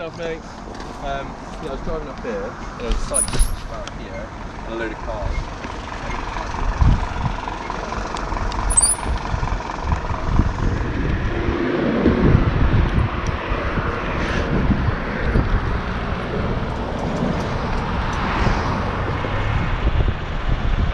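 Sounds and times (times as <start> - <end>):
road traffic rumble: 0.0 - 20.9
vehicles passing by: 0.0 - 20.9.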